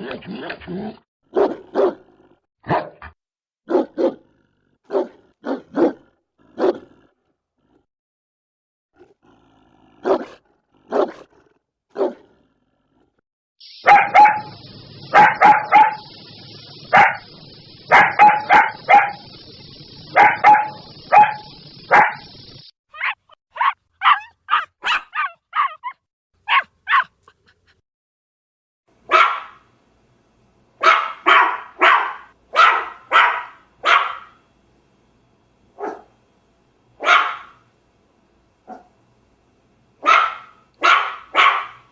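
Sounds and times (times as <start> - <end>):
large dogs barking: 1.3 - 3.0, 3.7 - 4.3, 4.9 - 6.9, 10.0 - 11.3, 11.9 - 12.3, 13.8 - 19.4, 20.0 - 22.4, 23.0 - 25.9, 29.1 - 29.6, 30.8 - 34.4, 35.8 - 36.1, 37.0 - 37.6, 40.0 - 41.9.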